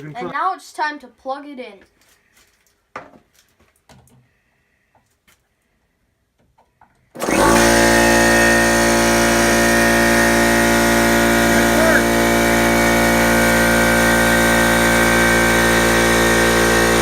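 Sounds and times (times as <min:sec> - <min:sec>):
air compressor running: 0:07.2 - 0:17.0.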